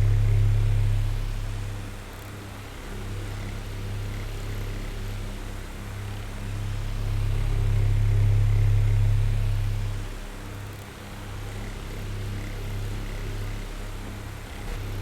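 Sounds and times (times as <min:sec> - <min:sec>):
electric fan humming: 0:00.0 - 0:01.6.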